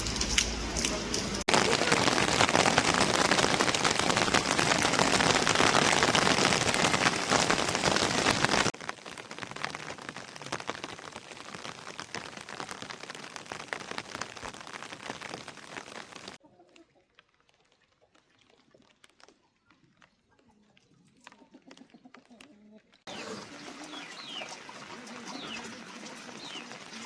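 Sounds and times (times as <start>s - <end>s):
heavy rain falling: 0.0s - 16.4s, 23.1s - 27.0s
scattered drips: 0.0s - 16.4s, 23.1s - 27.0s.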